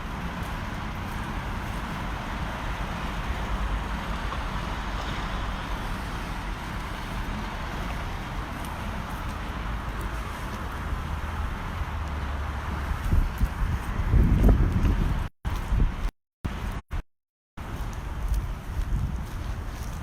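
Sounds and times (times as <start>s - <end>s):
distant traffic hiss: 0.0s - 13.0s
wind rumbling on microphone: 0.0s - 16.8s, 17.6s - 20.0s.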